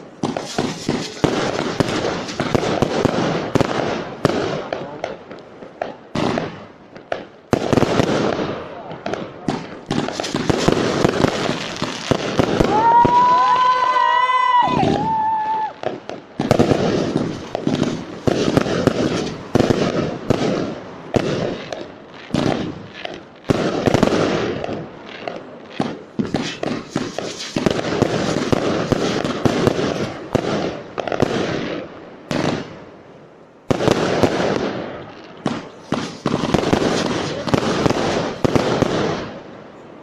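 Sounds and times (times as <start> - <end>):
firework aerial bangs: 0.0 - 39.7
fireworks crackling: 0.0 - 40.0
firework launch thumps: 0.2 - 3.0, 9.5 - 13.3, 24.6 - 31.2.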